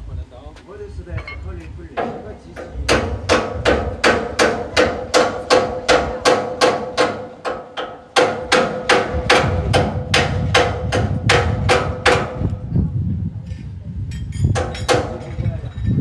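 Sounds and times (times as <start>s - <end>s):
steady ringing note: 1.1s - 2.8s
small hammer striking: 2.0s - 12.4s.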